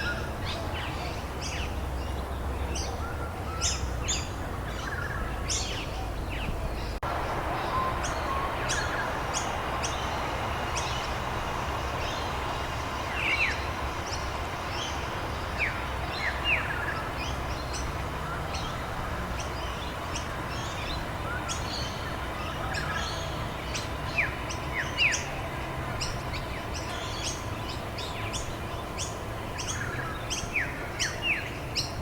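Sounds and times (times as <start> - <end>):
small birds chirping: 0.0 - 32.0
rain hiss: 7.0 - 32.0.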